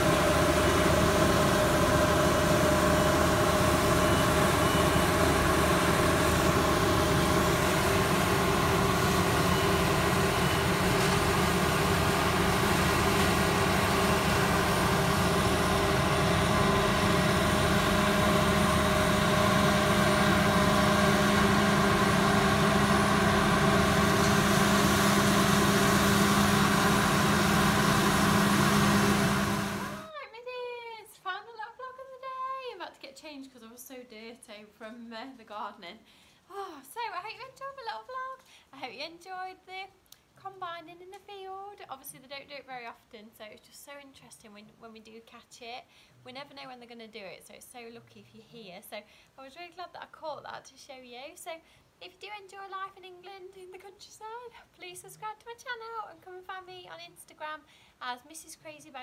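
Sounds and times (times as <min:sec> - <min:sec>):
combine harvester engine drone: 0:00.0 - 0:30.1.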